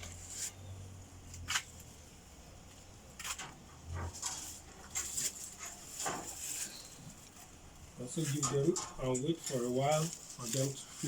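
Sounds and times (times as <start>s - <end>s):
rodents gnawing and crunching: 2.8s - 11.0s.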